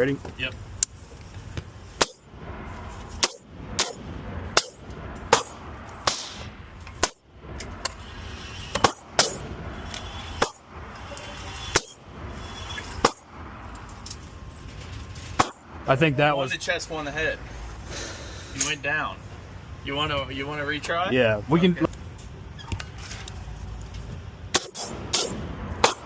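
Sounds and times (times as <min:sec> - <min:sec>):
rifle shots: 0:24.5 - 0:26.0.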